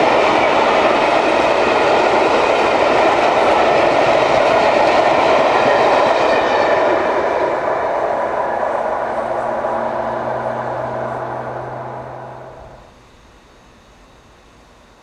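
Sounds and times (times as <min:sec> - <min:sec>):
train running past: 0:00.0 - 0:13.0
low steady hum: 0:08.7 - 0:14.8.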